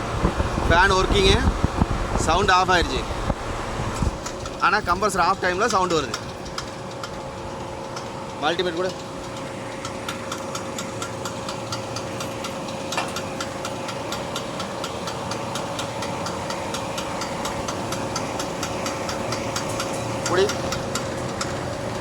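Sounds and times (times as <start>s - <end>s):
compressor hum: 0.0s - 22.0s
regular ticking knock: 0.3s - 22.0s.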